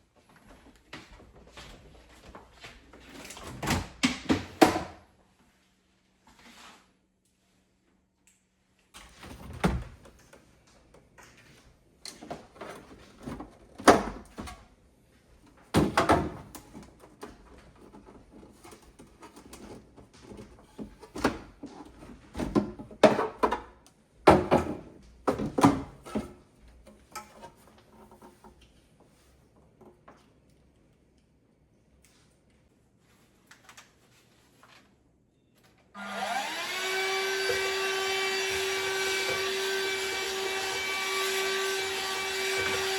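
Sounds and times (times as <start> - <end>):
refrigerator shelves and containers clattering: 9.0 - 10.4, 11.2 - 14.8, 15.5 - 28.6.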